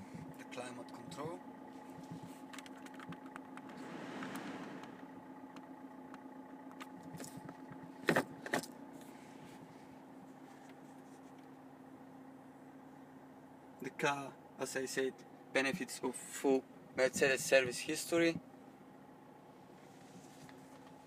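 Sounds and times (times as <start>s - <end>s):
low cabin hum: 0.0s - 14.8s.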